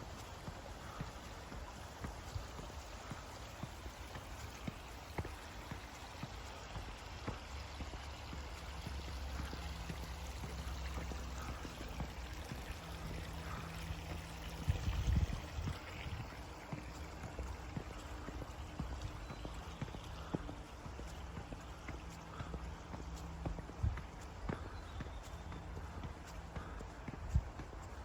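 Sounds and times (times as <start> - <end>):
stream water rushing: 0.0 - 22.4.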